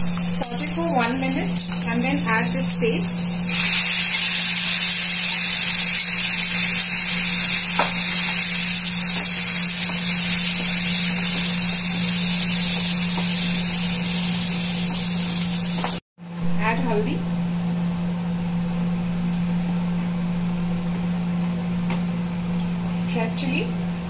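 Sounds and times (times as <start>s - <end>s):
vegetables sizzling in oil: 0.1s - 16.0s.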